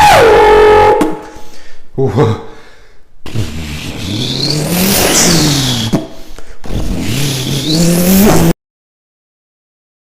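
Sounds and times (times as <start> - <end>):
person imitating engine revving: 3.3 - 6.0, 6.6 - 8.6.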